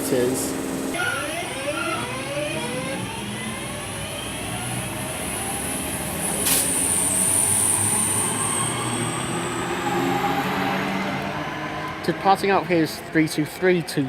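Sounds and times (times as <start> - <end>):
electric train traction whine: 0.0 - 13.7
high-pitched whistle: 6.6 - 10.4.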